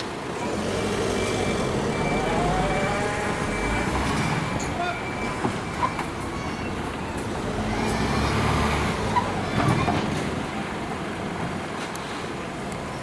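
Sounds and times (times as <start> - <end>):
street noise: 0.0 - 13.0
vehicle engine passing close by: 0.2 - 10.4.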